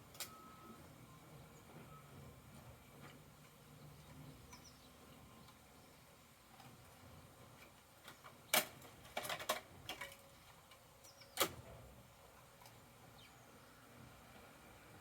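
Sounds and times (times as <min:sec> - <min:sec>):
toy truck clicks and knocks: 0:08.1 - 0:10.8.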